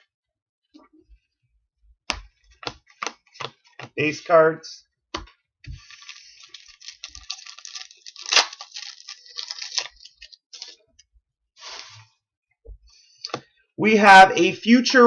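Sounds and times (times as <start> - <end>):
card pack wrapper crinkling and tearing: 5.8 - 10.8.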